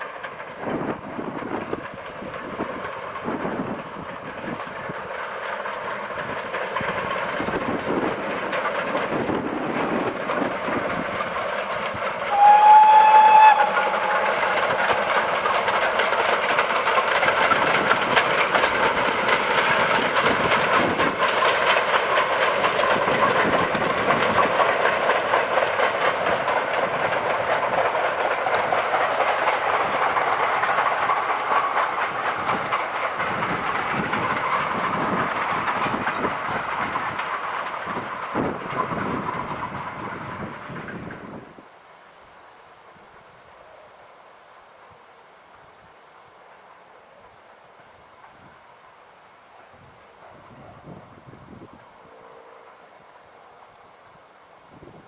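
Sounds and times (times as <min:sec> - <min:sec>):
steam and rail noise: 0:00.0 - 0:55.0
wheels clicking over rail joints: 0:00.0 - 0:55.0
steam locomotive whistle: 0:12.3 - 0:14.6.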